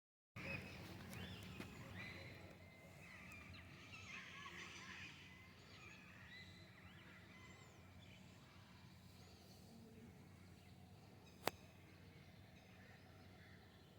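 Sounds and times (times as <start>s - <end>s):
birds chirping and calling: 0.4s - 9.4s.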